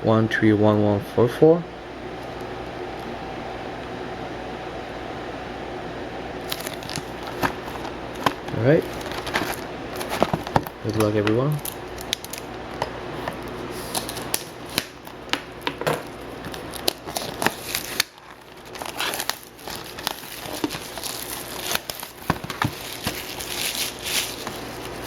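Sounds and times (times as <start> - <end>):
plastic wrapping crinkling and tearing: 6.4 - 25.0.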